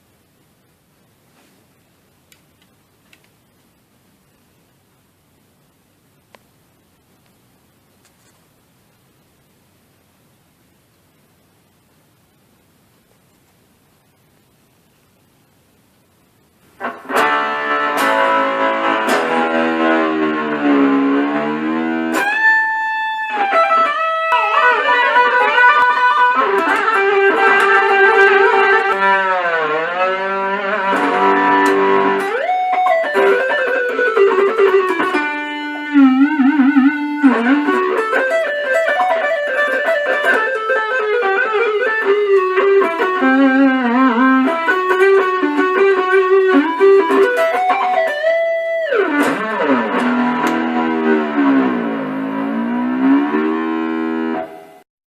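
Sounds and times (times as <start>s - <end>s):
electric guitar with whammy-bar dips: 16.8s - 54.8s.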